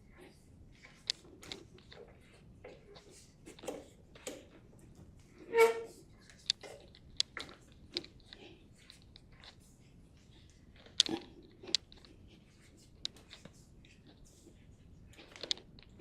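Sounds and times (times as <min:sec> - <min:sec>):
pitched squeak: 0:05.5 - 0:06.0.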